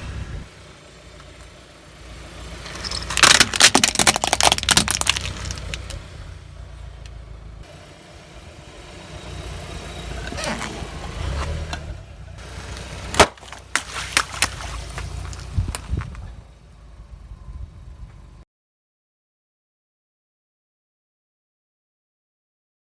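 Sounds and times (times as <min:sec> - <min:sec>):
car engine running low: 0:00.0 - 0:18.4
objects cracking under a tyre: 0:02.6 - 0:06.2, 0:10.2 - 0:11.9, 0:12.7 - 0:16.3.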